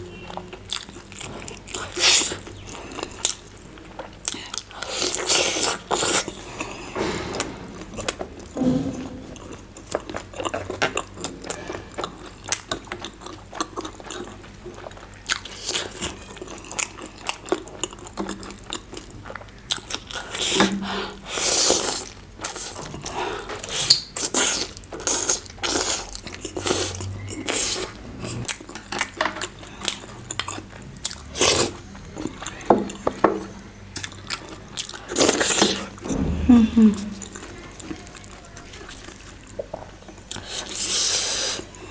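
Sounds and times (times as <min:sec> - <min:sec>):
person chewing crunchy food: 0:00.2 - 0:08.5, 0:09.4 - 0:36.0.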